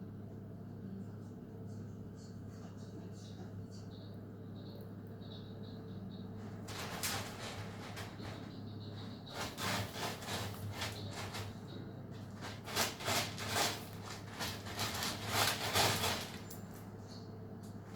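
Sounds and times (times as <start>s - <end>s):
kitten scratching in cat litter: 6.3s - 17.9s.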